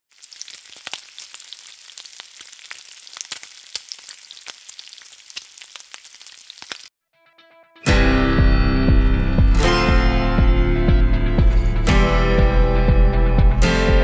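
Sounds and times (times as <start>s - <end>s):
food frying in hot oil: 0.1s - 6.9s.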